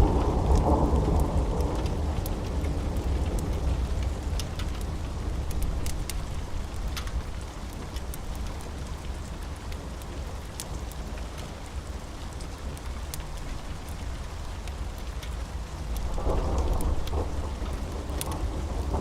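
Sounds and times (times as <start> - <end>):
low thunder rumble: 0.0 - 6.8, 16.0 - 19.0
steady rain: 0.0 - 19.0
wood fire crackling: 0.0 - 19.0.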